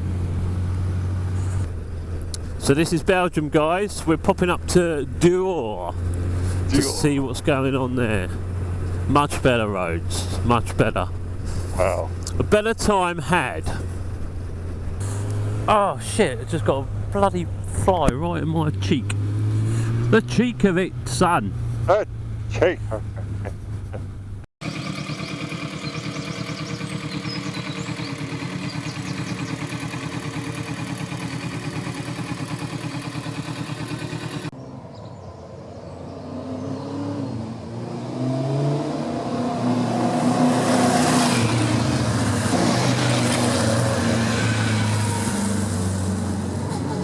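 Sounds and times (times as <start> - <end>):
motorcycle engine accelerating: 13.7 - 47.0.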